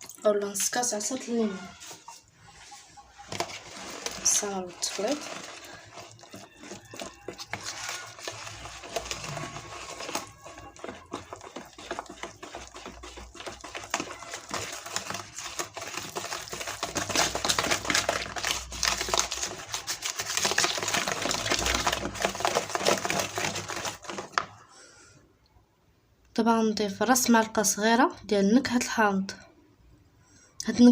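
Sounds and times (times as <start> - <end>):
whisk scraping a bowl: 1.5 - 24.4.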